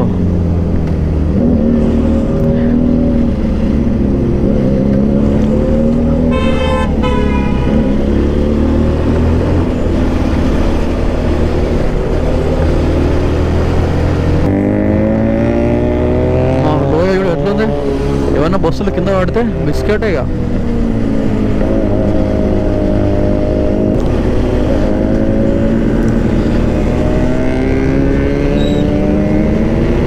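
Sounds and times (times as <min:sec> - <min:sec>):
motorcycle engine revving: 0:00.0 - 0:30.0
horn: 0:06.3 - 0:07.8.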